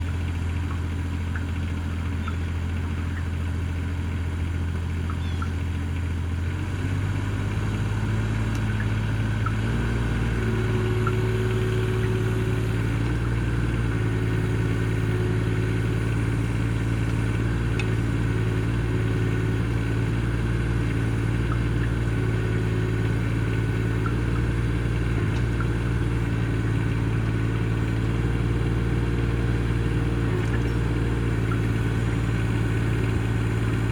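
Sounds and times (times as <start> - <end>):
excavator engine running: 0.0 - 33.9.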